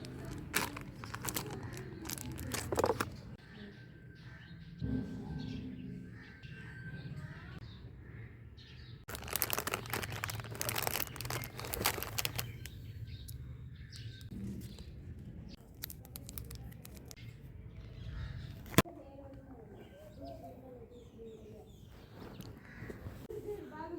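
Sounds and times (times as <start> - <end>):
packaging crinkling and tearing: 0.0 - 3.2, 9.1 - 12.8, 15.6 - 17.2
packaging rustling: 0.0 - 3.2, 9.1 - 12.8.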